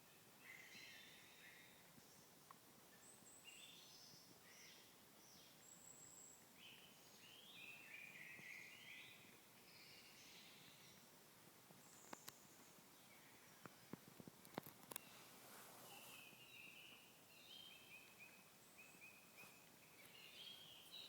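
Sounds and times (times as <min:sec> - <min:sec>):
faint birdsong: 0:00.0 - 0:21.0
steady low hiss: 0:00.0 - 0:21.0.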